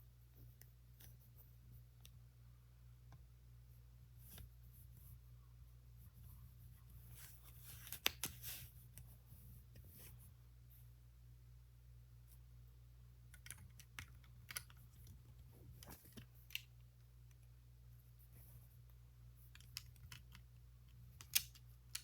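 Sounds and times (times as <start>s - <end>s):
low steady hum: 0.0s - 22.0s
plastic pieces clicking together: 21.2s - 22.0s.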